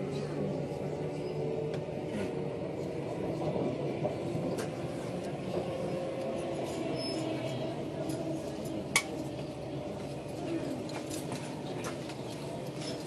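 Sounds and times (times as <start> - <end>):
train running noise inside carriage: 0.0 - 13.0.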